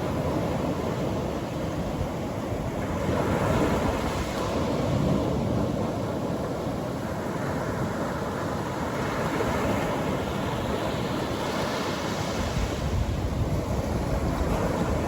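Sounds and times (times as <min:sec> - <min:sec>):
ocean surf breaking on beach: 0:00.0 - 0:15.0.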